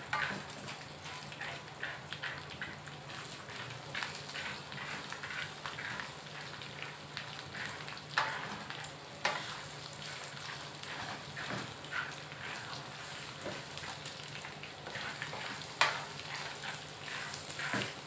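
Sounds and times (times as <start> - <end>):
peanuts and garlic sizzling in wok: 0.0 - 18.0
wooden spatula scraping wok: 0.0 - 18.0
spatula clacking against pan: 0.1 - 2.8, 7.6 - 9.6, 14.4 - 18.0.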